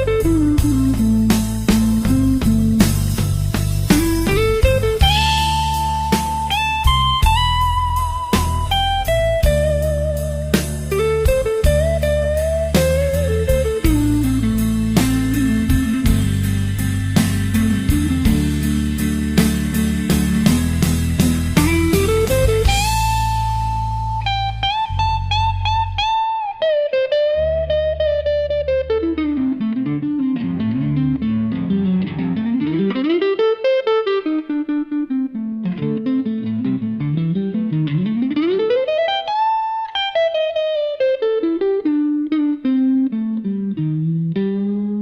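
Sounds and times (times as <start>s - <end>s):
low bass accompaniment: 0.0s - 26.4s, 27.3s - 33.2s
electric guitar blues melody: 0.0s - 45.0s.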